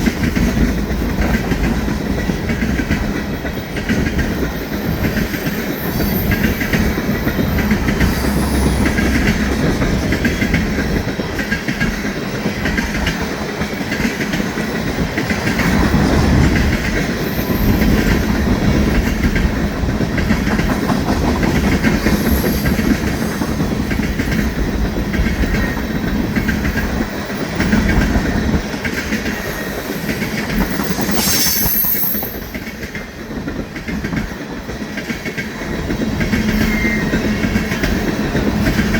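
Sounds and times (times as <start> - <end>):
train wheels clacking on rails: 0.0 - 38.9
high screech: 29.3 - 33.0.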